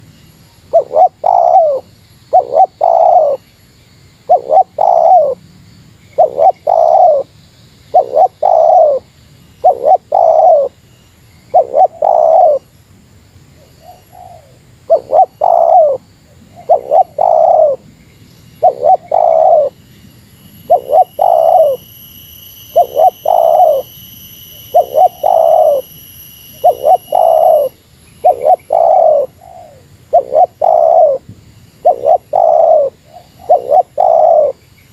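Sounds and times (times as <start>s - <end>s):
faint high whine: 0.0s - 34.9s
dove cooing: 0.7s - 3.4s, 4.2s - 5.4s, 6.1s - 7.3s, 7.9s - 10.8s, 11.5s - 12.6s, 13.8s - 17.8s, 18.6s - 19.8s, 20.7s - 21.8s, 22.7s - 23.9s, 24.6s - 25.9s, 26.5s - 31.2s, 31.8s - 34.6s.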